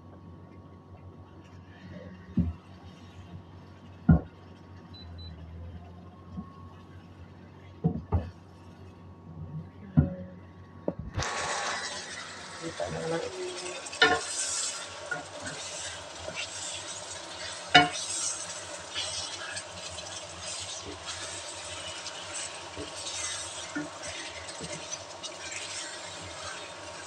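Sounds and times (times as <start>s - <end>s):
chicken sizzling in oil: 11.2s - 27.0s
wooden spatula scraping a wok: 11.3s - 27.0s.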